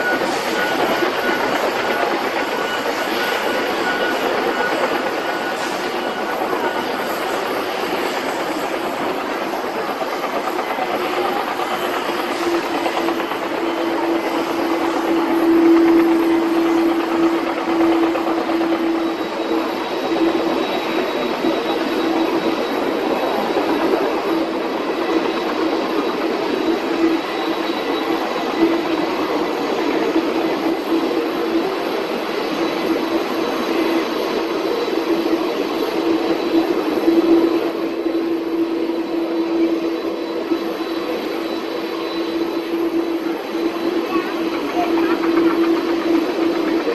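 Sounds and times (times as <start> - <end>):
jet engines running: 0.0 - 46.9.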